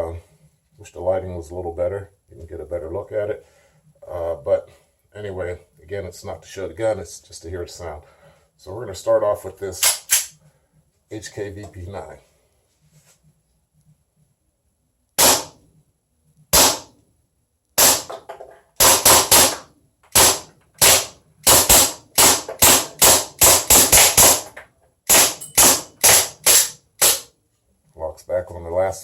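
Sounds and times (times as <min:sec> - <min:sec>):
airsoft pistol shots: 0:09.8 - 0:10.3, 0:15.2 - 0:15.6, 0:16.5 - 0:17.0, 0:17.8 - 0:18.2, 0:18.8 - 0:27.3
pistol slide cycling: 0:09.8 - 0:10.3, 0:25.1 - 0:27.3.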